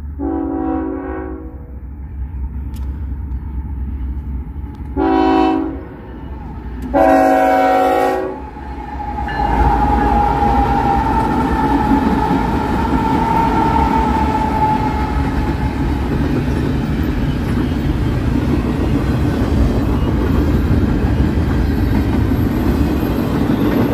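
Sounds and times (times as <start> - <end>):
train wheels rumbling on rails: 0.0 - 23.9
train horn blast: 0.2 - 1.8, 4.9 - 6.3, 6.9 - 15.9.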